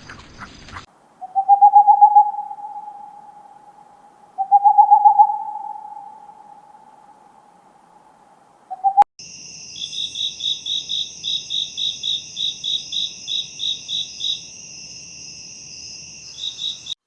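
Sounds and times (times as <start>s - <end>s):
long even hoots: 1.2s - 9.0s.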